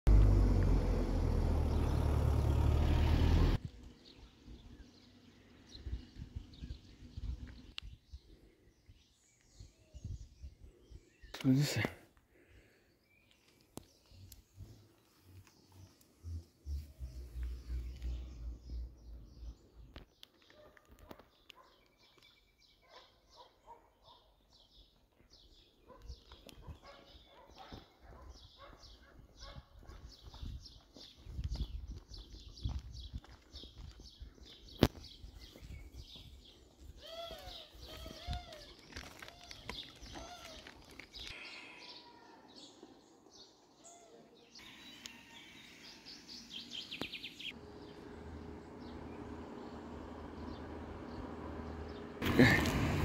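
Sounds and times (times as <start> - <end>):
vehicle engine rumbling: 0.1 - 7.4, 14.2 - 20.1, 47.3 - 53.0.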